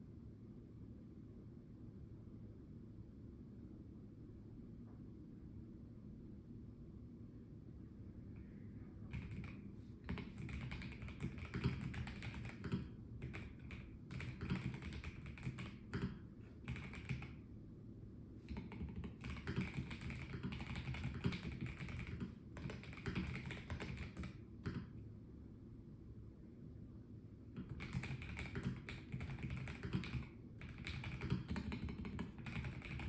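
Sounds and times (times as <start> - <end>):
mechanical keyboard key clicks: 9.1 - 17.4, 18.5 - 24.9, 27.6 - 33.0.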